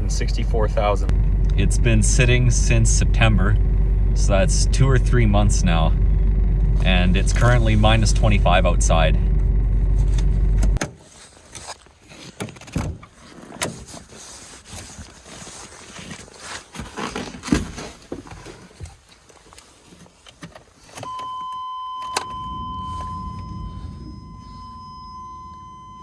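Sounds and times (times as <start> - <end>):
low hum: 0.0 - 10.8, 21.9 - 26.0
high electronic warning tone: 21.1 - 26.0.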